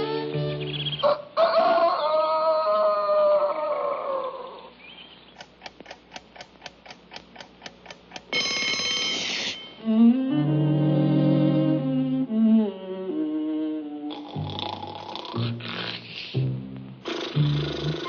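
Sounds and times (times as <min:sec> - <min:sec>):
clock ticking: 0:05.4 - 0:09.3
alarm clock bell ringing: 0:08.3 - 0:09.8
cartoon score music: 0:08.4 - 0:18.0.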